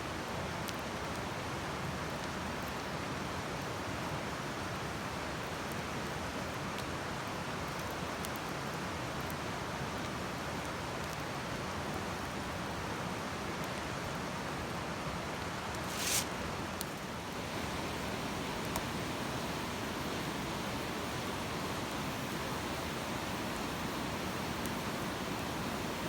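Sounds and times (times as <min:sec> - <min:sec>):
campfire hissing and crackling: 0:15.7 - 0:26.0.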